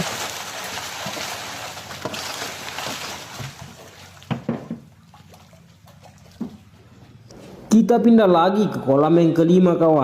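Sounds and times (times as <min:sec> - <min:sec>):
fish splashing at water surface: 0:00.0 - 0:06.7
sharp knocks: 0:04.3 - 0:04.9.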